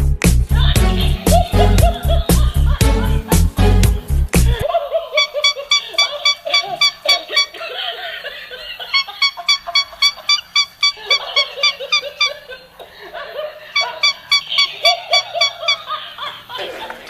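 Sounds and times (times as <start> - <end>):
laugh-like bird calls: 4.6 - 17.0.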